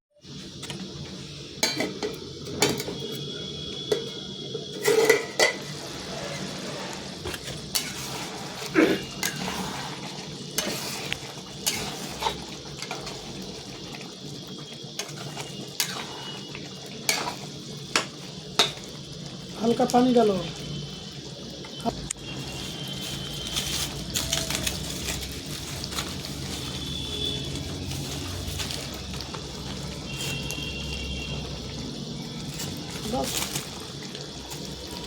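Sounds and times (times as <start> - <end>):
metal spoon scraping a pot: 4.7 - 13.3, 15.0 - 18.8.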